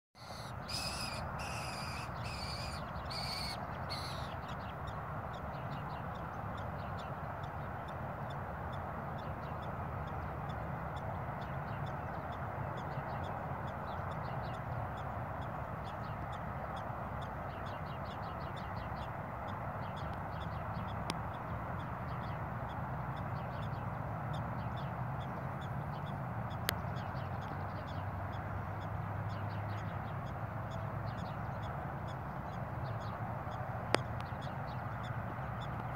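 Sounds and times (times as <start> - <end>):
bird sharp calls: 0.2 - 4.5
outdoor noise: 0.2 - 35.9.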